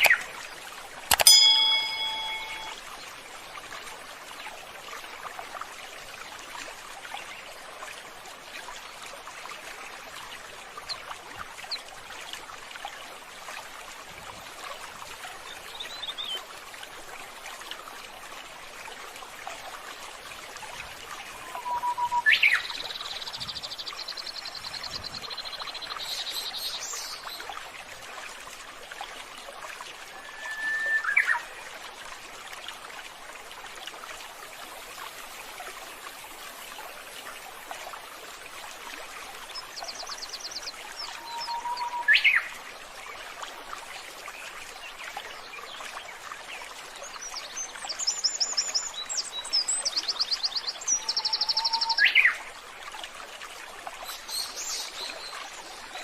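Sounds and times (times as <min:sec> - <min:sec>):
birds calling: 0:00.0 - 0:00.4
running water: 0:00.0 - 0:56.0.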